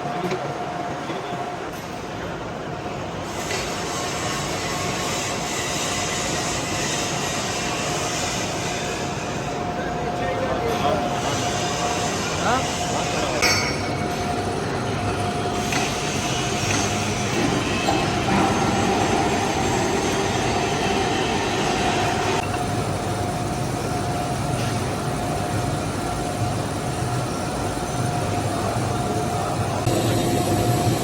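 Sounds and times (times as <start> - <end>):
metal lathe running: 10.7 - 31.0
high whine: 28.2 - 31.0.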